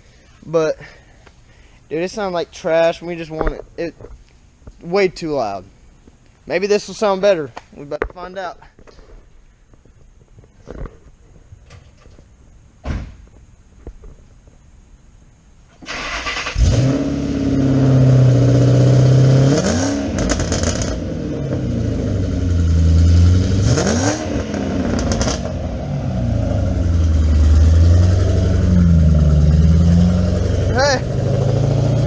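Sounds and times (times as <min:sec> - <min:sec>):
car engine starting: 0:15.7 - 0:32.0
car engine idling and revving: 0:16.5 - 0:32.0.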